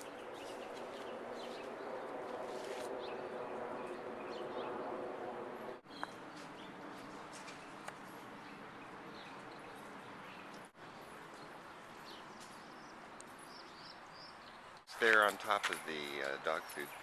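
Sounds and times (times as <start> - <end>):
small birds chirping: 0.0 - 2.2, 5.8 - 14.9.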